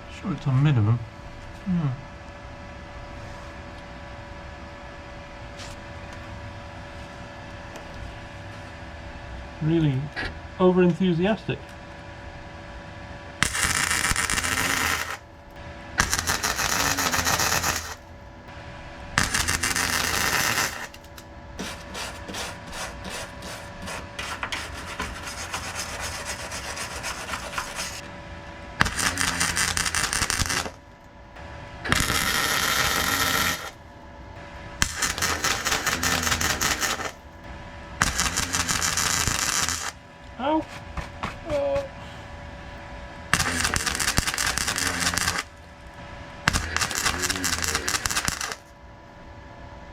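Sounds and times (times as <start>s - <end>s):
crackling welding arc: 13.4s - 18.1s, 19.2s - 28.1s, 28.8s - 31.0s, 31.8s - 33.8s, 34.8s - 37.3s, 38.0s - 40.0s, 43.3s - 45.6s, 46.4s - 48.7s.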